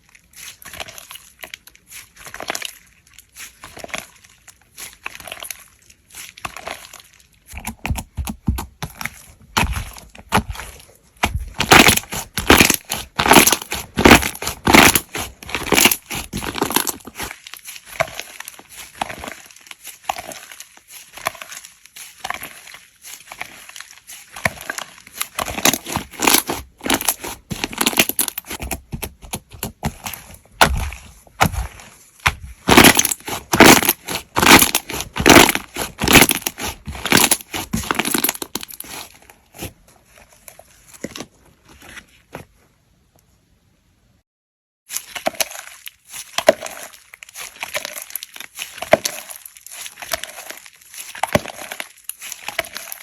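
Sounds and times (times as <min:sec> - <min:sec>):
slime squeezed by hand: 0:09.0 - 0:39.8.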